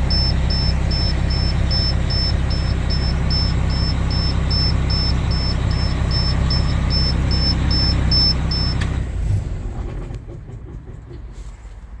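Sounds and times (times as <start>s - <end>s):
warning beeper: 0.0s - 8.8s
engine running down: 0.0s - 11.8s
diesel engine idling: 0.0s - 12.0s.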